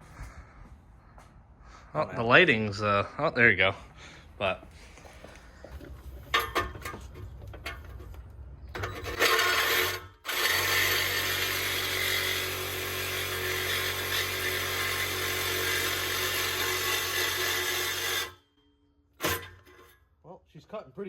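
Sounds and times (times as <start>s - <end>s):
reciprocating saw cutting metal pipe: 8.8s - 18.6s, 19.2s - 20.0s.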